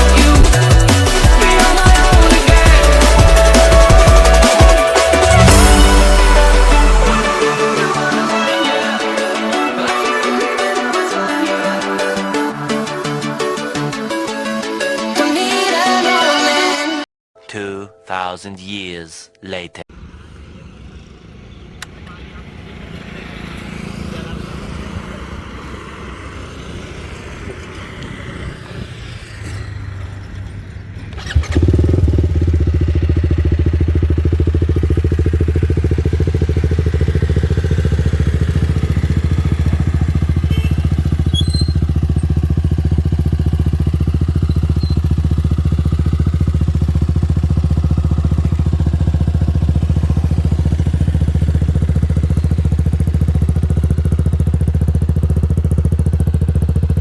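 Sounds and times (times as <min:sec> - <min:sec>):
motorcycle engine idling: 0:00.0 - 0:07.0, 0:20.5 - 0:28.6, 0:31.1 - 0:57.0
motorcycle engine starting bang: 0:29.9 - 0:57.0.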